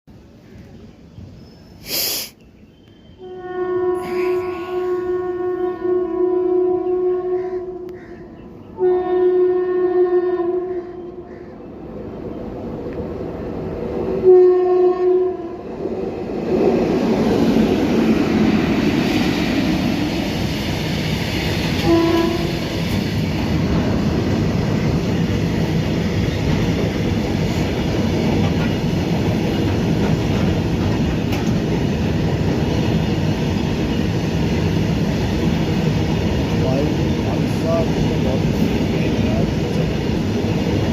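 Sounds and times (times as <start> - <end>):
train rumble and rail clatter: 0.1 - 1.8, 2.5 - 40.9
locomotive horn blasts: 3.2 - 8.0, 8.8 - 11.3, 14.2 - 15.6, 21.8 - 22.6.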